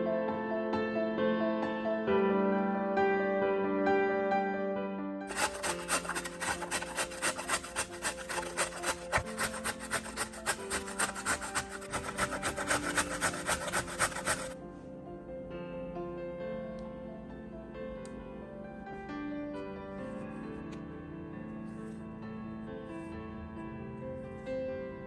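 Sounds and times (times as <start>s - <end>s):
carrot grated on metal grater: 5.3s - 14.6s
soft background music: 7.1s - 25.0s.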